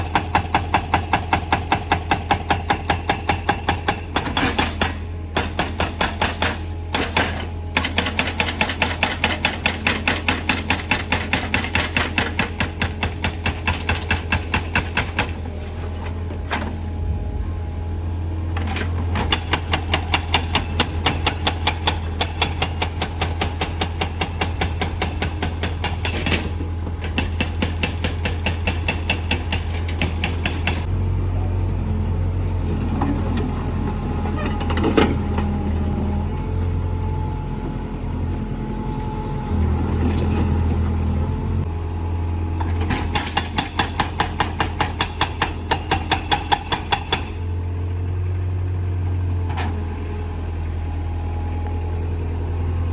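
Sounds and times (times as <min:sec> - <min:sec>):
hydraulic breaker hammering: 0:00.0 - 0:15.4, 0:19.2 - 0:30.9, 0:43.0 - 0:47.5.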